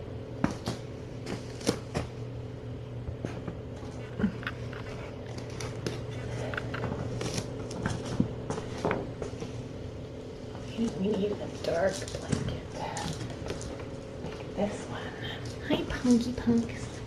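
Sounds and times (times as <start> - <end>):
steady low hum: 0.0 - 17.0
objects being handled: 3.1 - 9.7, 10.5 - 14.6.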